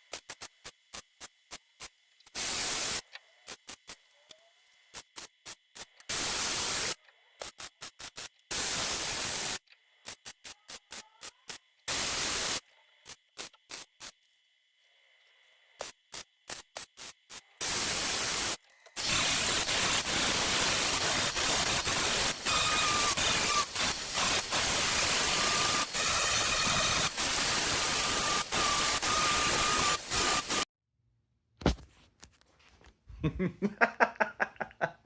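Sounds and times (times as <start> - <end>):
welding arc buzzing: 11.5 - 12.6, 15.8 - 30.7.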